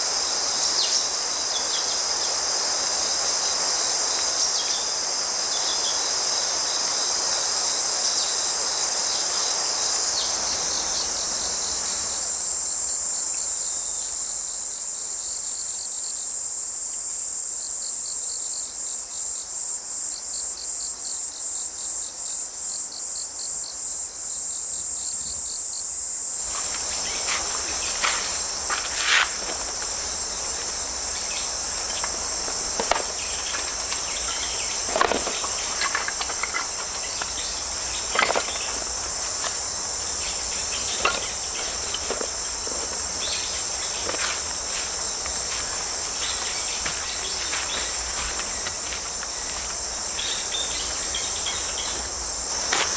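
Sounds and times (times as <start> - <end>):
crickets and insects chorus: 0.0 - 52.9
insect chirping in even pulse: 23.2 - 52.9
rushing stream: 26.4 - 52.9.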